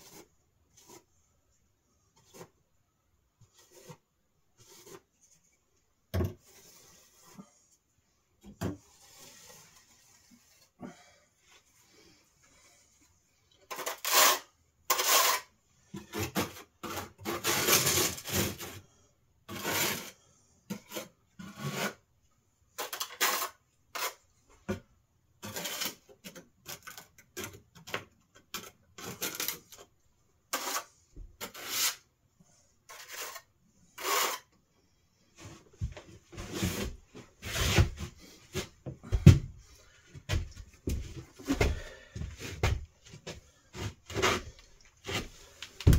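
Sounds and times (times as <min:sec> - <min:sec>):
rubbing and scraping insulation: 0:06.4 - 0:08.1, 0:08.8 - 0:10.8, 0:13.7 - 0:18.9, 0:19.5 - 0:22.1, 0:25.4 - 0:32.1, 0:35.3 - 0:39.2, 0:42.3 - 0:45.9.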